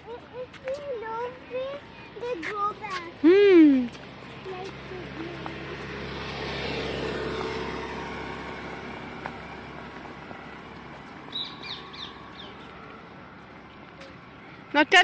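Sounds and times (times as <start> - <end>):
road vehicle passing by: 0.0 - 15.0
bird chirps: 11.3 - 12.8.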